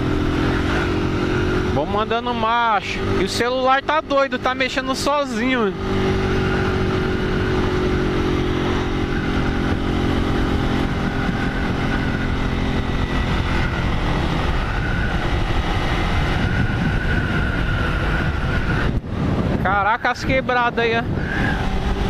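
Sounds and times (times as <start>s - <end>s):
motorcycle engine running: 0.0s - 22.0s
wind rushing: 5.6s - 22.0s.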